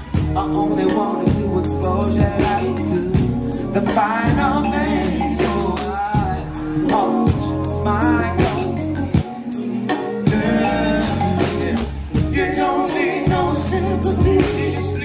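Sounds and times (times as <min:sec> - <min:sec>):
bass: 0:00.0 - 0:15.0
drums: 0:00.0 - 0:15.0
person singing: 0:00.0 - 0:15.0.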